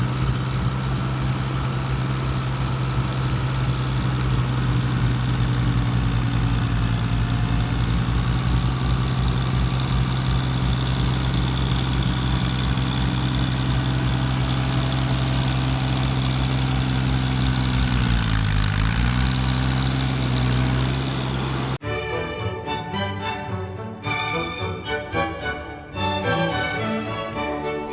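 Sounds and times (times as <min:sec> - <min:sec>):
tractor diesel engine running: 0:00.0 - 0:21.8.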